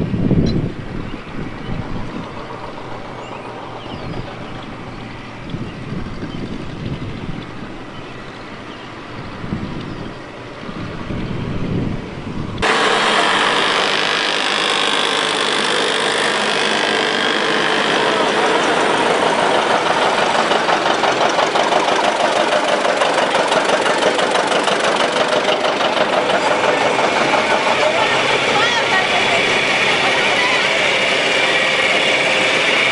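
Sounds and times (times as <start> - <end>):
tractor engine putting: 0.0 - 11.4, 12.0 - 32.9
wind rumble on microphone: 0.0 - 12.6.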